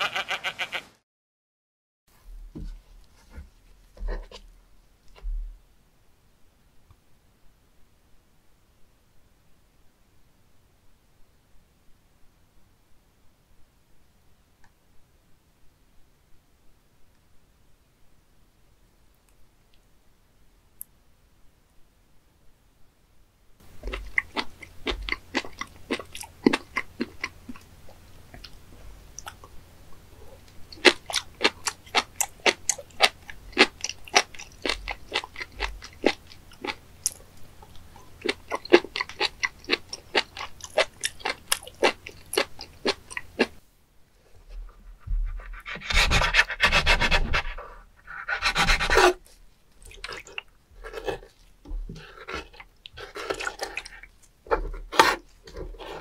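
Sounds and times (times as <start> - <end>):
crisp crunchy chewing: 23.6 - 29.6, 30.2 - 43.6, 45.5 - 56.0.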